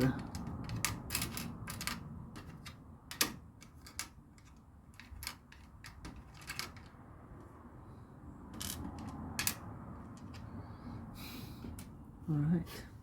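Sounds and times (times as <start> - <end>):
plastic toy bricks clicking: 0.1 - 7.0.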